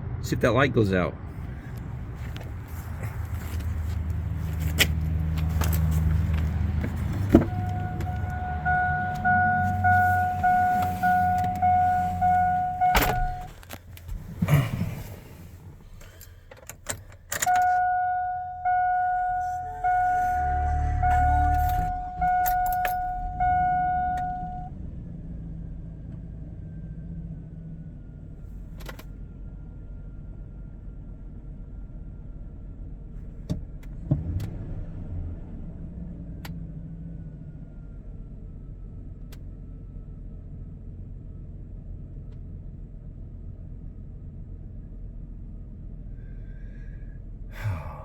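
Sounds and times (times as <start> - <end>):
truck engine idling: 1.3 - 16.5, 17.1 - 24.7
dashboard warning chime: 5.7 - 13.6, 17.4 - 24.7
keys rattling: 21.6 - 23.3.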